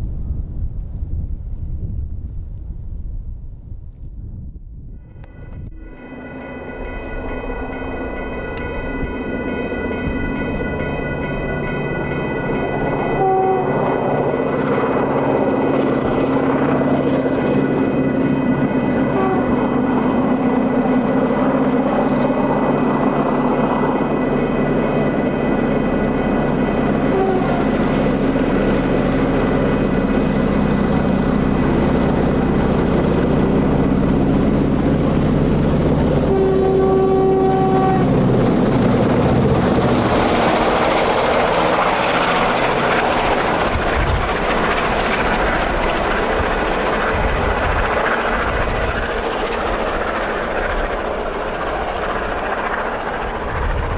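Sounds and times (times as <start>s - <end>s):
diesel locomotives running: 4.8s - 53.9s
train horn: 5.3s - 9.4s, 12.4s - 14.2s, 19.0s - 20.5s, 26.6s - 28.8s, 36.2s - 41.4s
rushing hiss of passing train: 19.8s - 53.9s.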